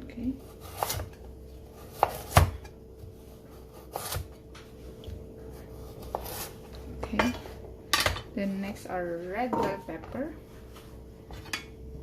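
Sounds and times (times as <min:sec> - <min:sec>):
knife chopping on a board: 0:00.5 - 0:01.2, 0:01.8 - 0:03.1.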